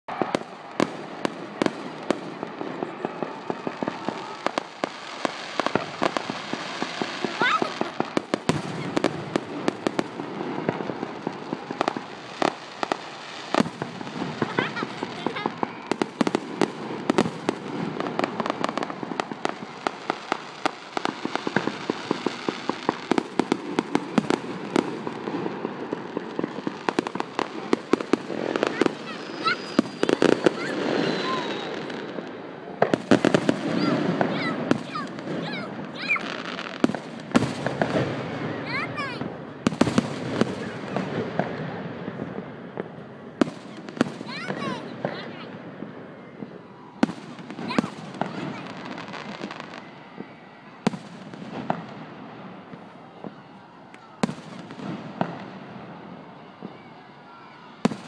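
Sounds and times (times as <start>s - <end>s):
fireworks bangs and pops: 0.1s - 58.0s.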